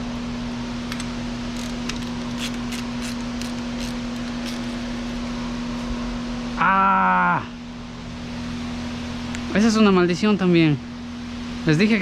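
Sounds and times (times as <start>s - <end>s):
steady one-tone hum: 0.0s - 6.7s
hand tools clicking: 0.9s - 5.9s.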